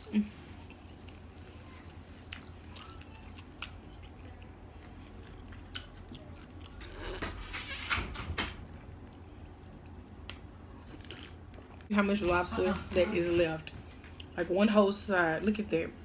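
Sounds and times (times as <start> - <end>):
person chewing food: 0.0 - 7.3, 8.6 - 11.9, 13.8 - 14.4.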